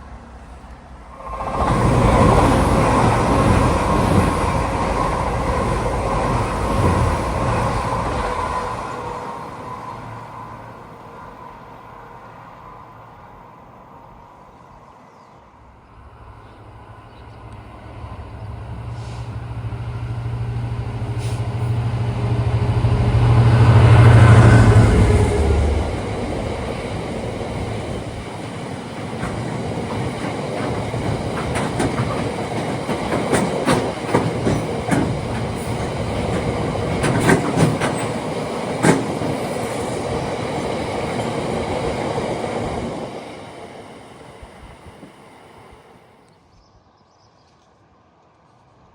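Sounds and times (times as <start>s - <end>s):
locomotive engine drone: 15.9s - 46.3s
wheels clicking over rail joints: 25.9s - 42.1s.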